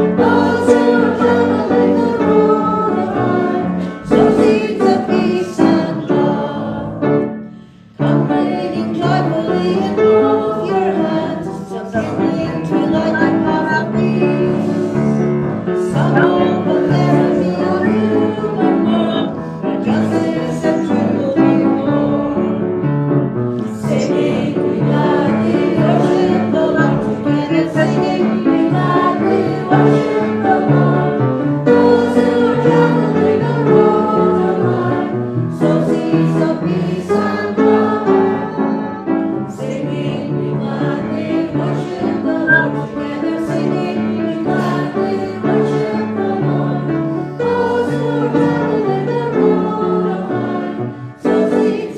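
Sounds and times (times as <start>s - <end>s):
congregation singing a hymn: 0.0s - 51.9s
musical accompaniment: 10.4s - 32.5s, 42.3s - 43.6s.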